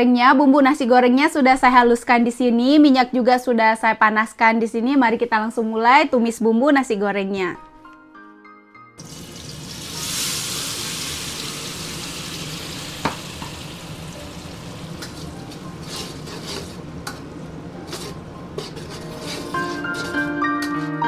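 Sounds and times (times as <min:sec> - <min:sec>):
paste sizzling in hot oil: 0:09.0 - 0:16.8
spatula scraping wok: 0:14.7 - 0:21.0.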